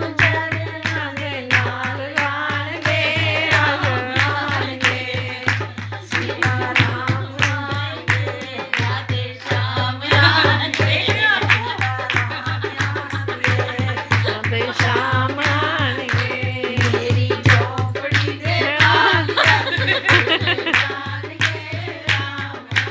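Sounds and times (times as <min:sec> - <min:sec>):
fast percussion beat: 0:00.0 - 0:22.9
woman singing devotional song: 0:00.0 - 0:22.9.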